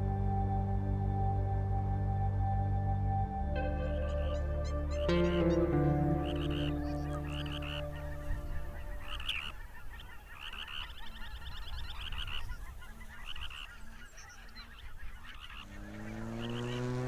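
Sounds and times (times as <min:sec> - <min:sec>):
geese honking: 0:03.6 - 0:17.0.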